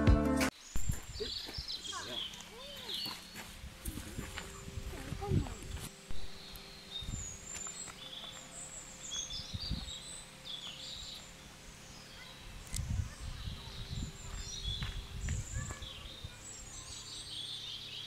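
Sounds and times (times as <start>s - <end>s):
small birds chirping: 0.5s - 18.0s
low rumble from walking: 2.3s - 8.6s, 12.6s - 16.4s.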